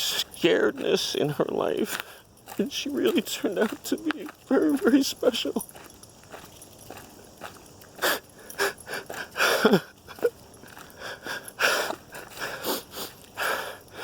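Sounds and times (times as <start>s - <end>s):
man crying: 2.7s - 5.6s, 8.0s - 14.0s
gasping breaths and sniffs: 5.7s - 14.0s
voiced sob: 8.0s - 14.0s.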